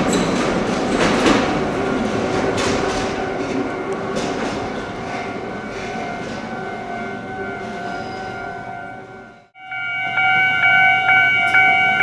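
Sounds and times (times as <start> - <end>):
train wheel knocks: 0.0 - 5.2
train rumbling on track: 0.0 - 9.6.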